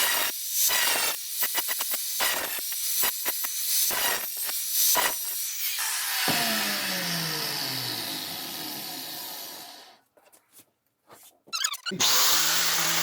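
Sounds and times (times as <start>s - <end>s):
motor winding down: 5.8s - 10.0s, 11.9s - 13.0s
power tool grinding: 5.8s - 10.0s, 11.8s - 13.0s.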